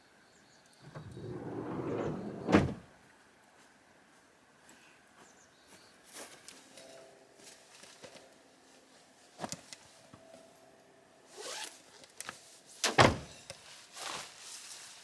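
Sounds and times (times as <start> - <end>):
rustling swishes: 0.9 - 2.8.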